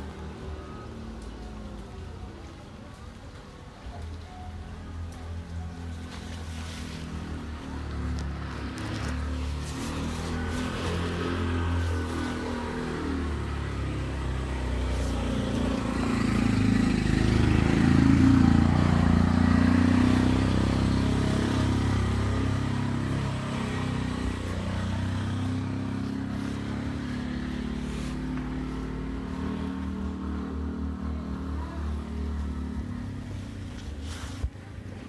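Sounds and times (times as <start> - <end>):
motor vehicle driving past: 4.8 - 35.0.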